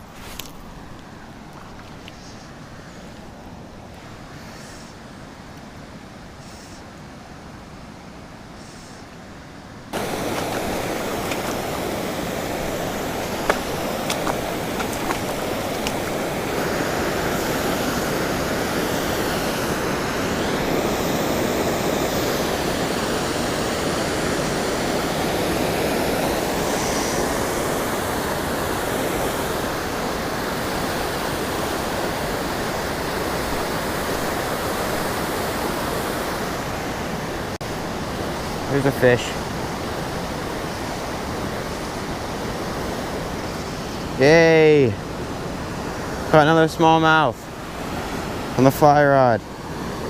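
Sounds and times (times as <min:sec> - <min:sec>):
waterfall rushing into pool: 0:09.9 - 0:49.9.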